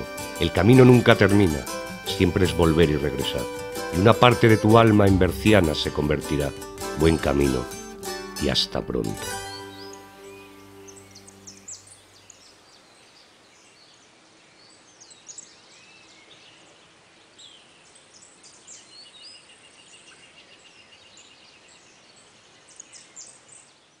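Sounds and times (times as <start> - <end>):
bird trill: 0.0 - 12.6
small birds chirping: 0.0 - 24.0.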